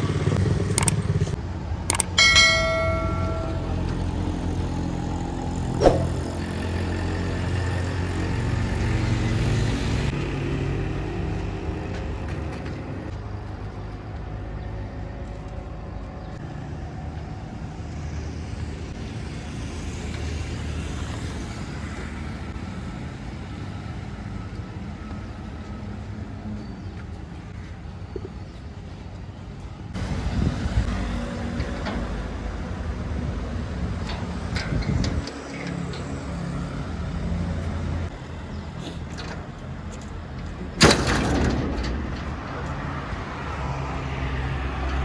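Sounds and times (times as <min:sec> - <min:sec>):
road traffic passing: 0:00.0 - 0:45.0
sharp click: 0:00.7 - 0:01.0, 0:01.9 - 0:03.6.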